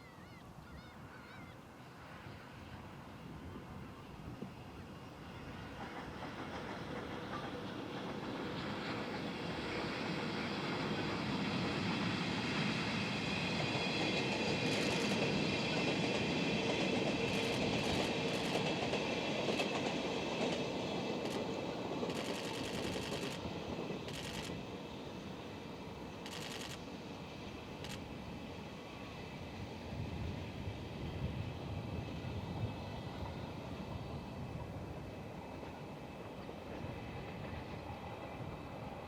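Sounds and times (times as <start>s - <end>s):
freight train rolling past: 1.9s - 39.0s
wheels clicking over rail joints: 16.9s - 24.6s.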